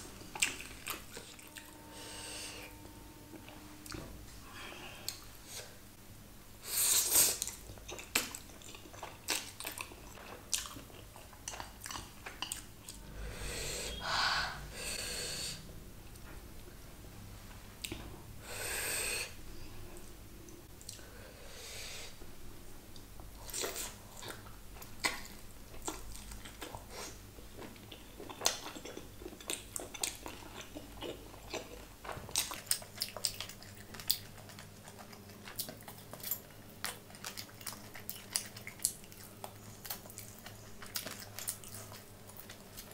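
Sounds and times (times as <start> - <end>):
chewing and biting food: 7.4 - 13.0, 23.4 - 42.9.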